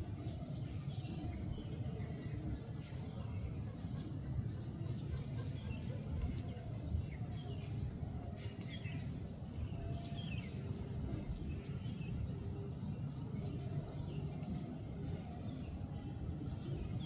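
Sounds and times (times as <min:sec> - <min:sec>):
bird chirps: 0:08.4 - 0:10.7.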